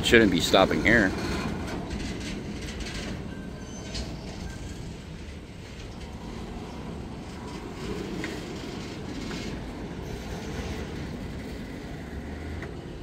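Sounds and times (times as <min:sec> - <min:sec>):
freight train wheels rumbling on rail: 0:00.0 - 0:13.0.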